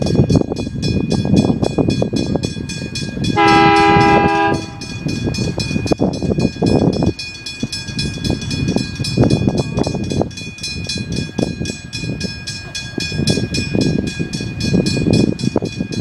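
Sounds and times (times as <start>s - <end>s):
train wheels clattering on rails: 0.0s - 16.0s
train horn blast: 3.4s - 4.9s.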